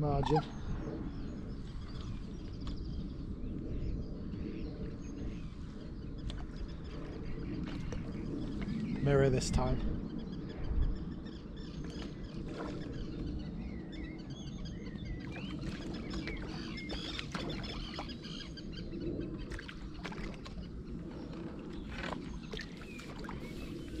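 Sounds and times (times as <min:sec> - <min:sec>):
small birds singing: 0:00.0 - 0:24.0
steady low rumble: 0:00.0 - 0:24.0.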